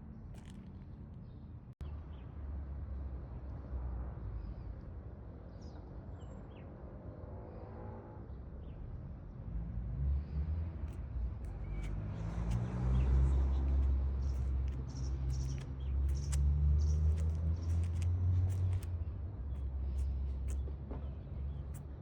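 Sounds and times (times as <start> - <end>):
steady low rumble: 10.7 - 22.0.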